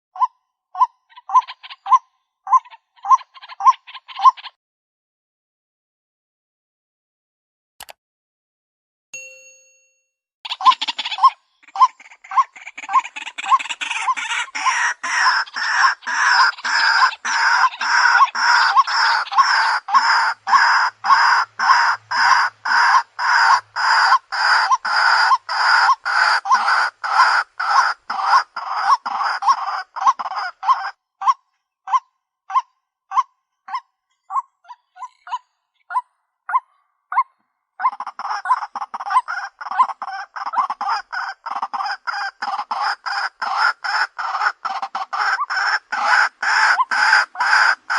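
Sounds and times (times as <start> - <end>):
bird croaking call: 10.5 - 47.9.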